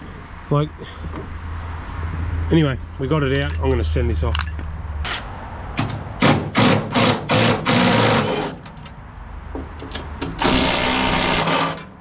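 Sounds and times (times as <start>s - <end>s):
power tool running: 6.5s - 8.6s, 10.4s - 11.9s.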